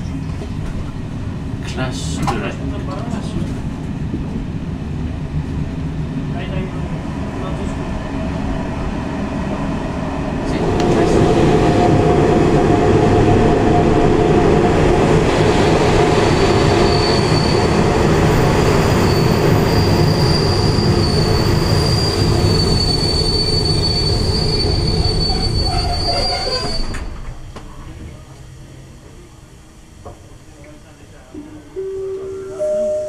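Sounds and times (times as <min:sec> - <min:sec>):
train rumbling over rails: 0:00.0 - 0:33.0
high squeal of wheels and brakes: 0:16.6 - 0:17.8, 0:19.0 - 0:27.2.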